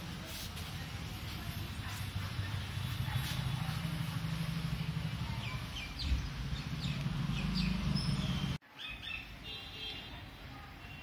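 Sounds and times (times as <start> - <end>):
small birds chirping: 4.8 - 9.6.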